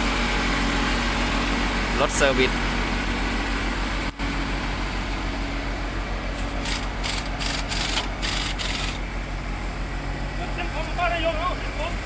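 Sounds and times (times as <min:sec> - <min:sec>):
engine running: 0:00.0 - 0:12.0
short hissing rasping bursts: 0:06.4 - 0:09.0.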